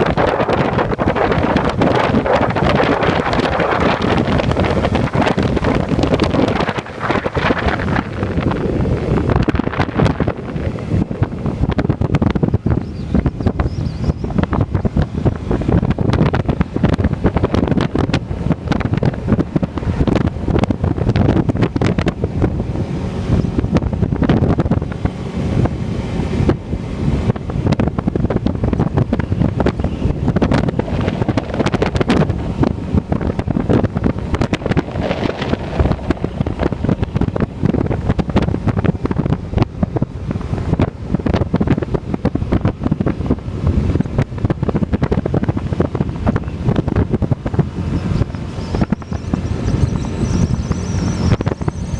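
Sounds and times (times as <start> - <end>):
motorcycle running: 0.0 - 51.9
wind buffeting microphone: 0.0 - 51.9.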